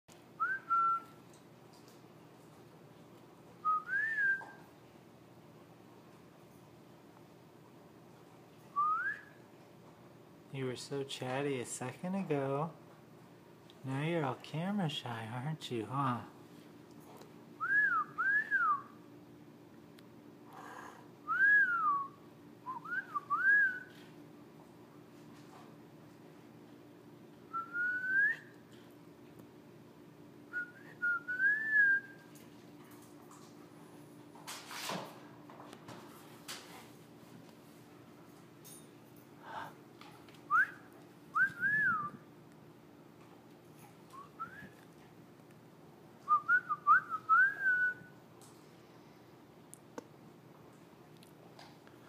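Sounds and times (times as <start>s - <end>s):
faint low hum: 0.1s - 52.0s
rising whistles: 41.4s - 42.2s.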